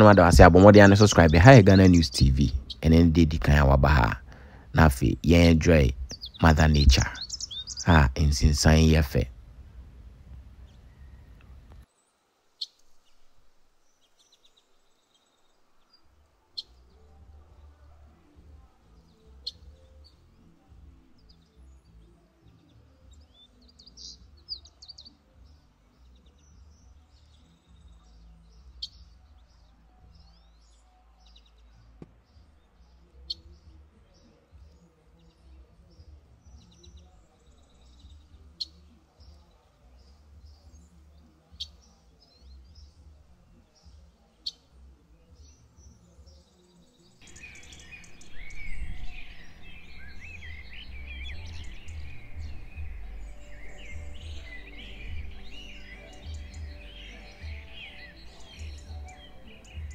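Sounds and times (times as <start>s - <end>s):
many birds chattering: 0.0s - 9.3s, 32.6s - 59.9s
birds chirping: 0.0s - 59.9s
low rumble: 4.8s - 7.1s, 47.4s - 55.8s.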